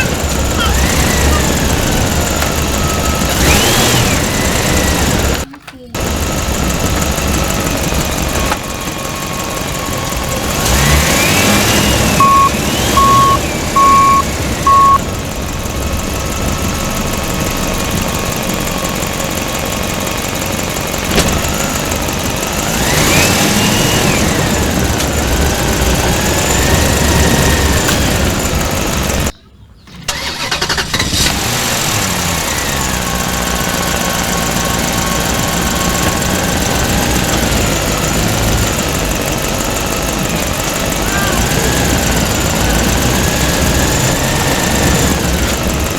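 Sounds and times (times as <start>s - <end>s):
toy engine hum with revving: 0.0s - 45.9s
short beeps: 12.2s - 15.0s.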